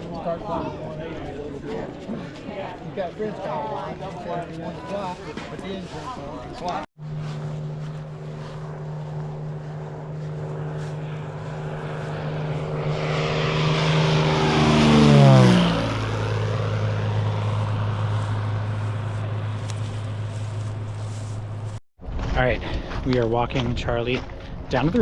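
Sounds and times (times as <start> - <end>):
propeller plane passing: 0.0 - 21.8.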